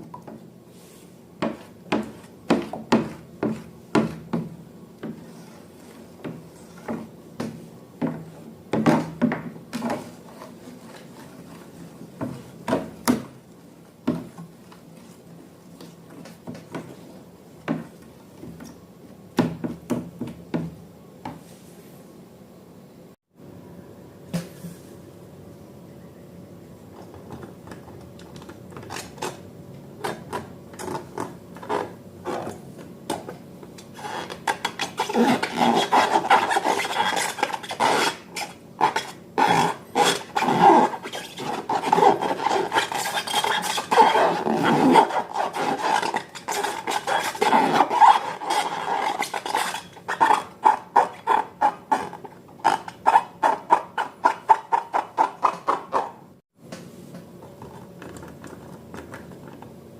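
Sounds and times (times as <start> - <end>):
utensil scraping a bowl: 33.8 - 56.2.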